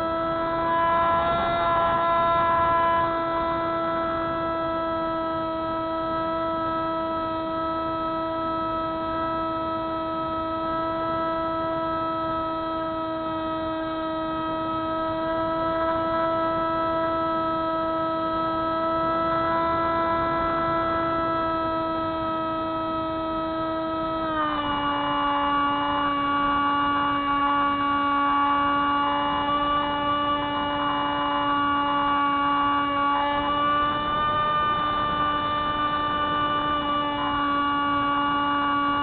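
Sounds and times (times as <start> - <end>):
model plane electric motor whine: 0.0 - 39.0.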